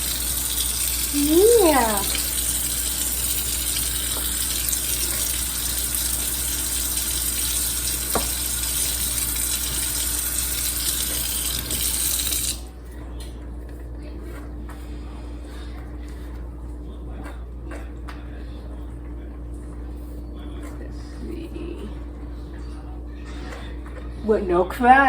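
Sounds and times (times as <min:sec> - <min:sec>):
tap water filling a bath: 0:00.0 - 0:12.7.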